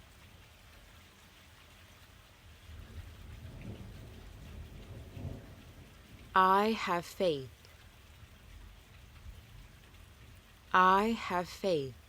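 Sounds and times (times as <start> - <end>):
steady rain falling: 0.0 - 12.0
thunder rumbling: 2.7 - 6.4.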